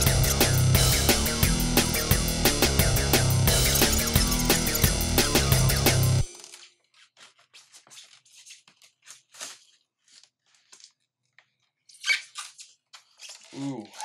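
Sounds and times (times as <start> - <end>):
background music: 0.0 - 6.3.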